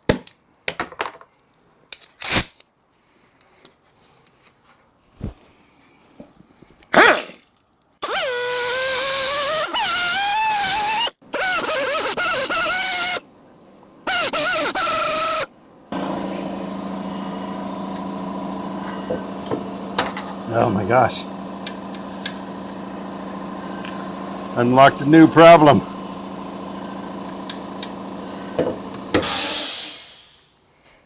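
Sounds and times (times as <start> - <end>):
angle grinder cutting steel: 8.0 - 13.2, 14.0 - 30.3.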